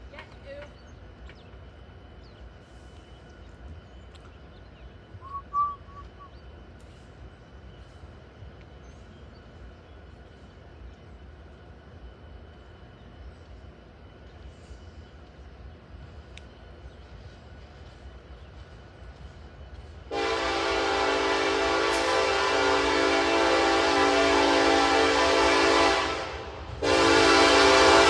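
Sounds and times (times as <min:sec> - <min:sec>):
short whistled call: 0:05.1 - 0:06.5.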